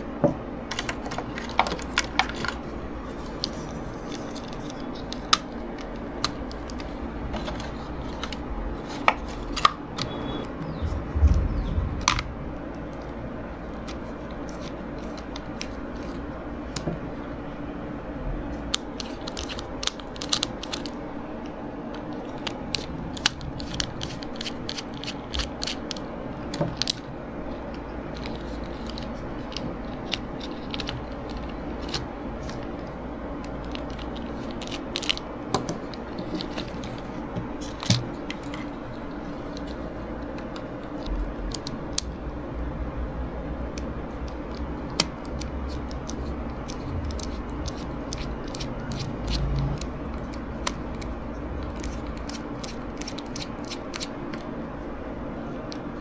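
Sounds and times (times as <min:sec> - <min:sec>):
steady low hum: 0:06.0 - 0:14.3, 0:22.2 - 0:25.7, 0:38.9 - 0:53.6
clicks and scrapes of small parts: 0:43.8 - 0:54.5.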